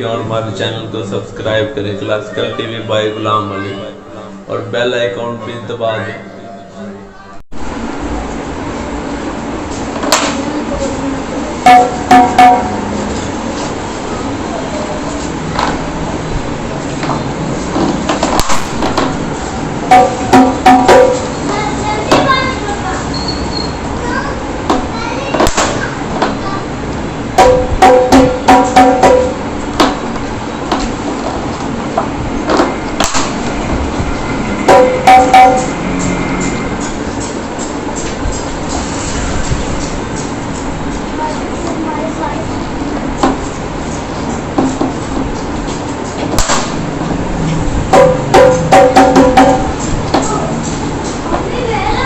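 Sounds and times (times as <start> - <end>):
drum knocks: 11.6 - 12.9, 18.4 - 21.5, 27.4 - 30.1, 32.0 - 36.9, 46.4 - 50.3
dhol drum beats: 18.4 - 21.3, 48.0 - 49.8.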